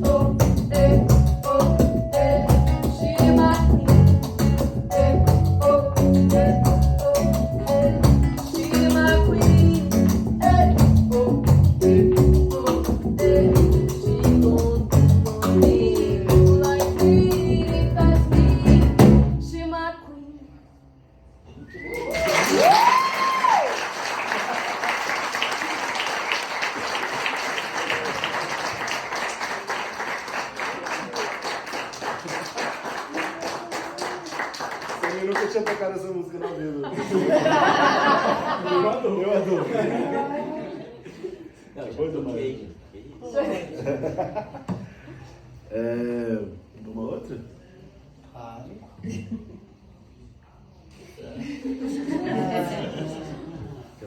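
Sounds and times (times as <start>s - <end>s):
live band with singing: 0.0s - 19.5s
whistles from audience: 21.5s - 23.8s
audience applauding and cheering: 21.8s - 35.8s.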